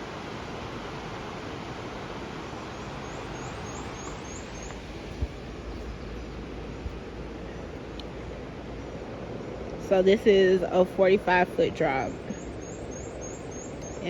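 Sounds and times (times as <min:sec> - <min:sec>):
waterfall rushing: 0:00.0 - 0:05.6
bird chirping: 0:03.0 - 0:04.9, 0:12.1 - 0:14.0.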